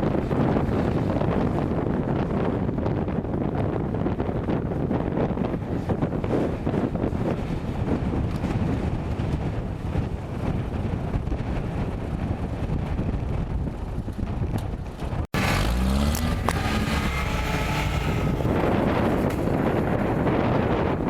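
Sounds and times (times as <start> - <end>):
wind noise on microphone: 0.0 - 21.0
vehicle engine running: 15.0 - 20.5
engine revving: 15.3 - 20.2.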